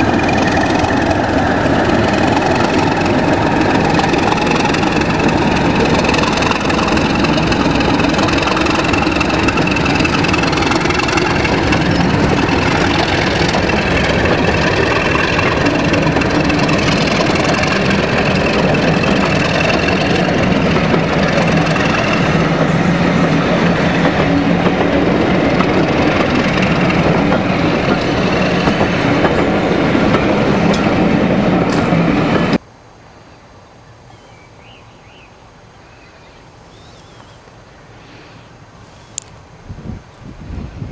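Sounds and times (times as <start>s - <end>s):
diesel locomotive running: 0.0s - 32.6s.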